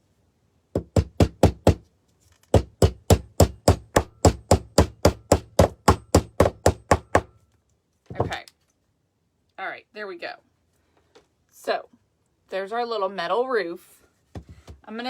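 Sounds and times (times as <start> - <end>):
hammer tapping a nail: 0.8 - 1.8, 2.5 - 7.4.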